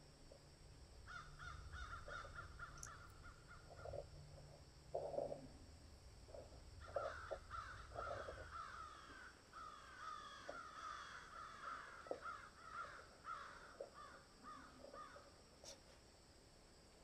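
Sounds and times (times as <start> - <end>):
flock of birds calling: 1.1 - 4.0, 6.8 - 15.2.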